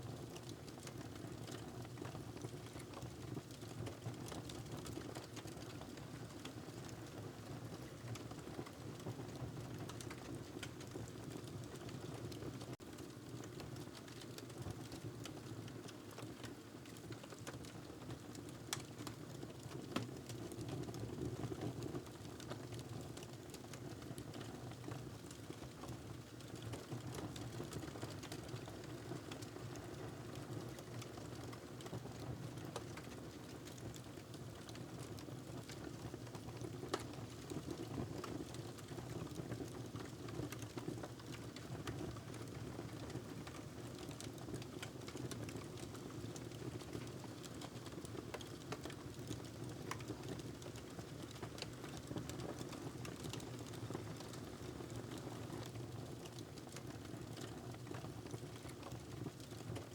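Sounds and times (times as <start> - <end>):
wood fire crackling: 36.5 - 37.1, 43.5 - 55.2.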